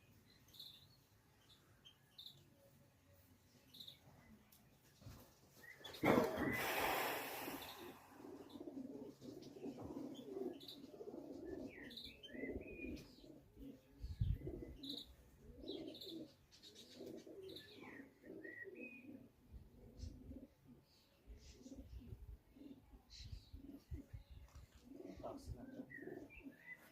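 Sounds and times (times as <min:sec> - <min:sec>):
small birds chirping: 0:00.0 - 0:26.9
pigeons cooing: 0:05.6 - 0:26.9.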